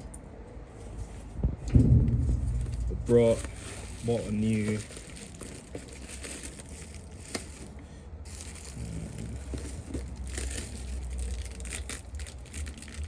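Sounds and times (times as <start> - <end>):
packaging crinkling and rustling: 3.2 - 13.0.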